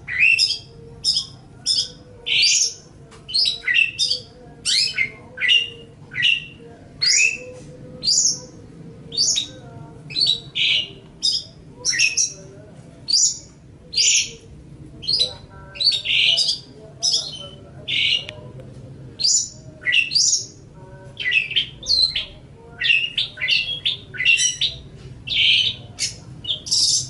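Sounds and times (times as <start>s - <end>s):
bird chirping: 0.0s - 12.5s, 15.0s - 18.4s, 21.2s - 27.0s.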